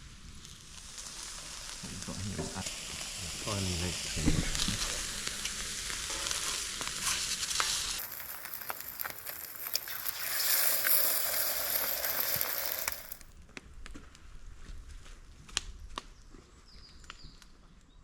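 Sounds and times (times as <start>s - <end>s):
food sizzling in a pan: 0.0s - 13.3s.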